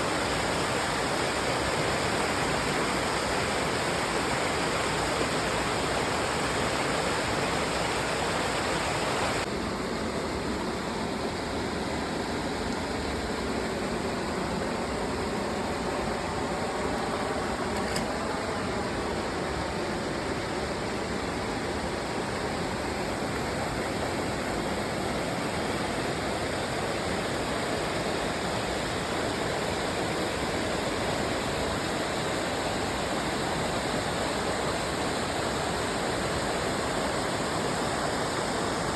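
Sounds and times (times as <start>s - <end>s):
waterfall rushing: 0.0s - 9.4s.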